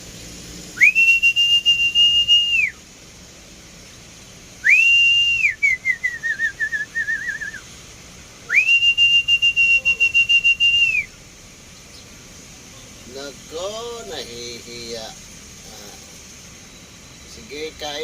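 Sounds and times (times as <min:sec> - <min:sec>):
person whistling: 0:00.8 - 0:02.8, 0:04.6 - 0:07.6, 0:08.5 - 0:11.1.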